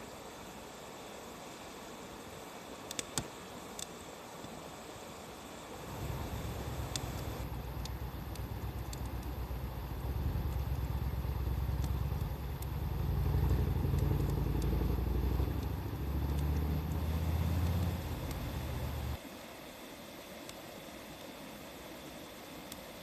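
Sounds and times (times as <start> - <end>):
wood fire crackling: 2.8 - 4.5, 5.7 - 19.2
low engine-like rumble: 5.8 - 19.2.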